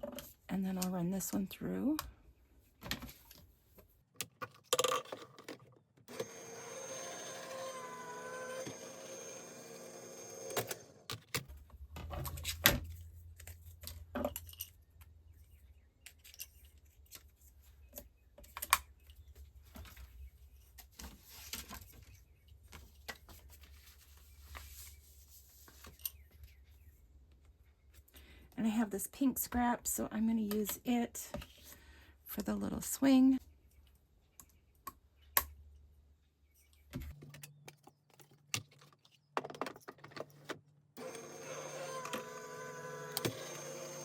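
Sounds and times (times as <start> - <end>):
die-cutting machine running: 6.1 - 11.0, 41.0 - 44.0.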